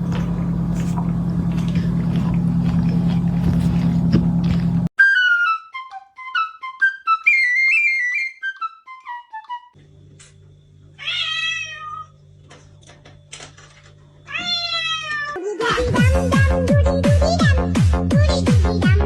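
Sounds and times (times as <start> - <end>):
low steady hum: 0.0 - 4.9
quick flute-like notes: 5.0 - 9.8
cat meowing: 11.0 - 12.2, 14.3 - 15.4.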